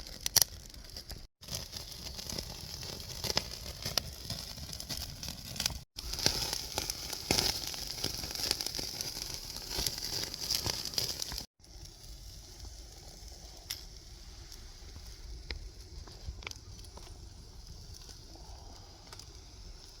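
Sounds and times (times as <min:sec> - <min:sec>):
crackling pops: 0:00.0 - 0:20.0
steaks sizzling on a grill: 0:06.0 - 0:15.4.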